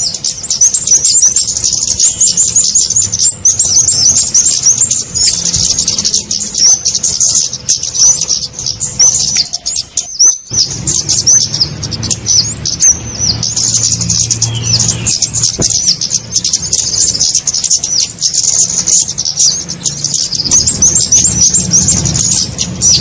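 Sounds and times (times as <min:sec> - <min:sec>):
rapid thin high bird chirps: 0:00.0 - 0:23.0.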